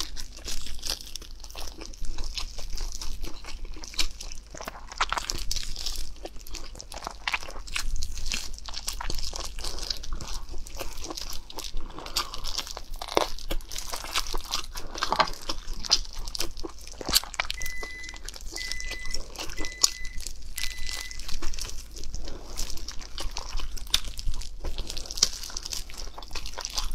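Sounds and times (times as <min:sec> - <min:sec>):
chewing and mouth smacks: 0:00.0 - 0:26.9
plastic gloves crinkling: 0:00.0 - 0:26.9
short high beeps: 0:17.6 - 0:21.2.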